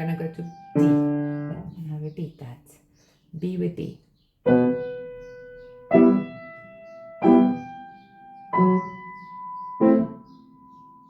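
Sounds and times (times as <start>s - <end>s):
piano chords ringing: 0.0s - 1.7s, 4.4s - 11.0s.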